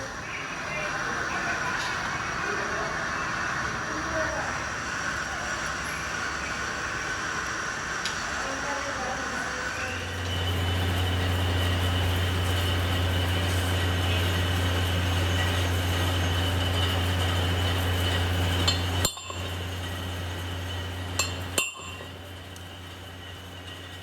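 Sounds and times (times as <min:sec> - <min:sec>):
workshop machine humming: 0:00.0 - 0:24.0
sharp metallic clinks: 0:18.0 - 0:20.1, 0:20.7 - 0:22.2.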